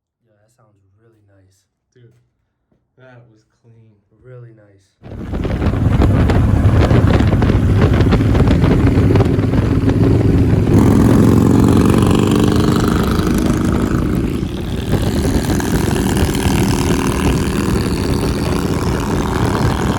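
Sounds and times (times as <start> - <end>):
motorcycle engine idling and revving: 5.0 - 19.9.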